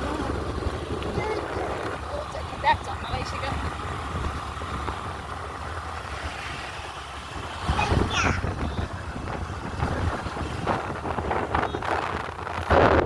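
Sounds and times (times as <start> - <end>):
vehicle rumble: 0.0 - 13.0
high-pitched voice: 7.7 - 8.6.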